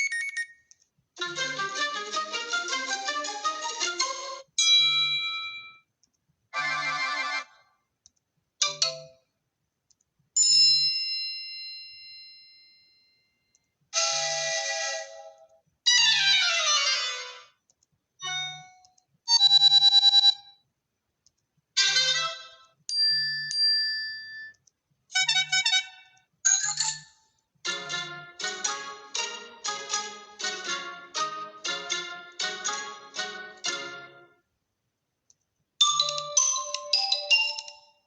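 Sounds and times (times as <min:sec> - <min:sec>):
electronic chimes and jingles: 0:00.0 - 0:00.6.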